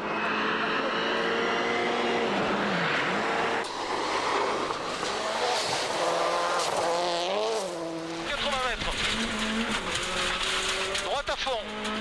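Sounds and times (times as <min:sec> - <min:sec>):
rally car engine running hard: 0:05.0 - 0:12.0.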